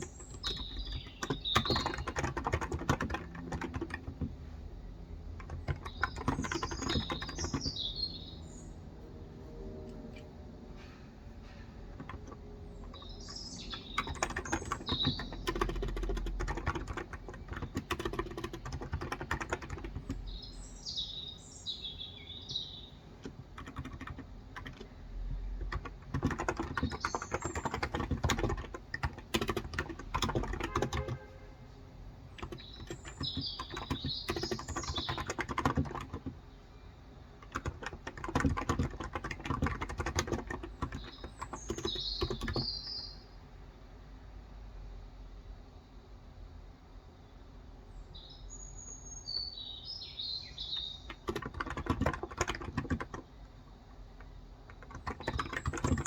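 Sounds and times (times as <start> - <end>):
bird chirping: 0.0 - 4.3, 5.4 - 8.9, 12.0 - 24.1, 24.7 - 31.5, 32.3 - 43.4, 47.9 - 53.3, 54.8 - 56.0
keyboard typing: 0.0 - 8.3, 11.8 - 20.5, 23.1 - 31.4, 32.2 - 36.4, 37.4 - 42.9, 50.6 - 56.0.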